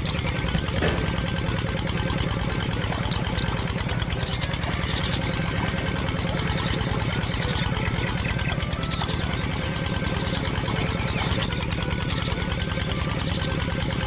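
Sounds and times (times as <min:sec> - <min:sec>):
engine idling: 0:00.0 - 0:14.0
high chirps: 0:02.8 - 0:13.6.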